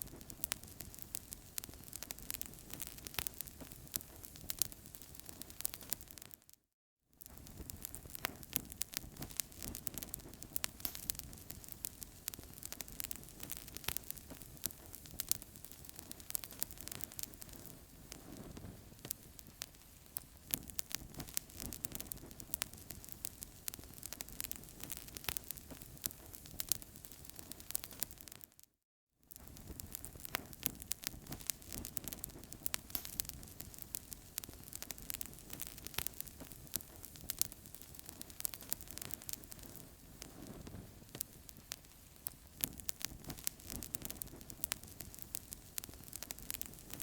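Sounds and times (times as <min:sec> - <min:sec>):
wood fire crackling: 0:00.0 - 0:06.5, 0:07.2 - 0:28.6, 0:29.3 - 0:47.0
sharp pops and snaps: 0:07.2 - 0:28.7, 0:29.3 - 0:47.0
low hiss of flames: 0:29.4 - 0:47.0.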